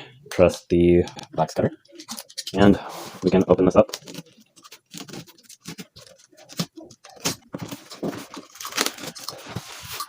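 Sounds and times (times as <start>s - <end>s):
cardboard box scraping and rustling: 4.8s - 10.0s.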